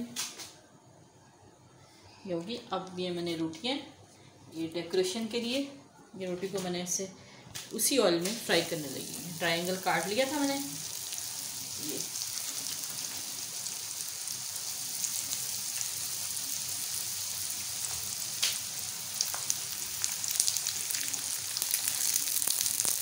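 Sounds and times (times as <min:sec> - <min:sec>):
bread sizzling in hot oil: 0:07.8 - 0:23.0
oil crackling pops: 0:17.8 - 0:23.0.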